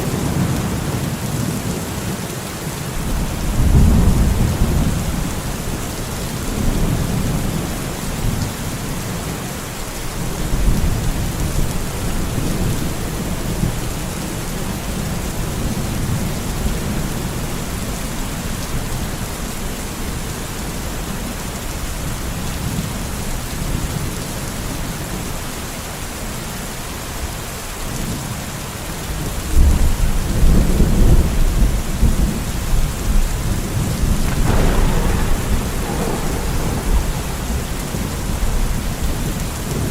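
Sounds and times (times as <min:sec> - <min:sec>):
steady rain: 0:00.0 - 0:39.9
thunder rumbling: 0:03.0 - 0:05.5, 0:34.0 - 0:39.9.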